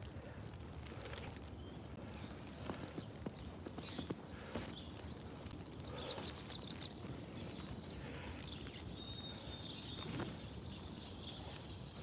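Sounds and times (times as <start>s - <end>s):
small birds whistling: 5.2s - 12.0s.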